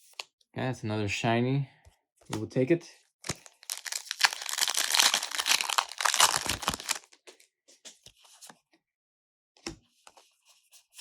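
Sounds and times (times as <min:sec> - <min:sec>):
foil wrapper crinkling and tearing: 0:03.2 - 0:07.2.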